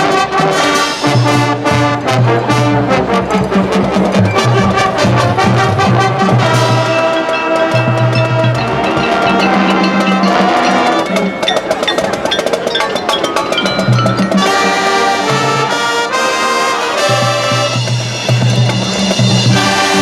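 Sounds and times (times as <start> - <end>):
brass holding chords: 0.0 - 20.0
marching drums: 0.0 - 20.0.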